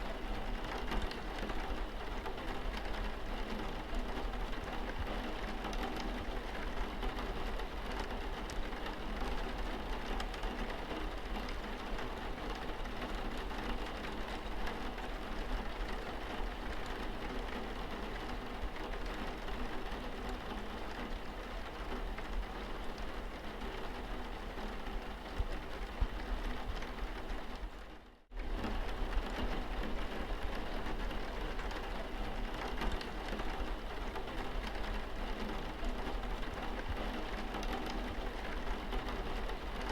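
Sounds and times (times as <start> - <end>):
rain pattering on windscreen: 0.0 - 39.9.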